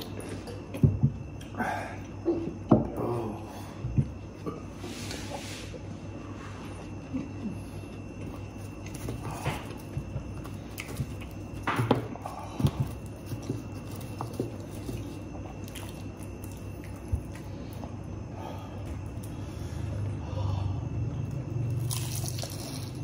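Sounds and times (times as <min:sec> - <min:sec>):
steady low hum: 0:00.0 - 0:23.0
chewing and biting food: 0:06.8 - 0:18.1, 0:21.1 - 0:23.0
crisp bites: 0:21.7 - 0:23.0.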